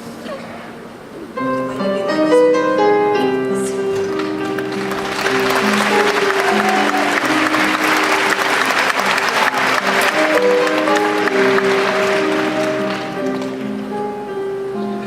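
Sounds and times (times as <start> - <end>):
keyboard sustained chords: 0.0 - 15.0
audience applauding: 3.9 - 14.2.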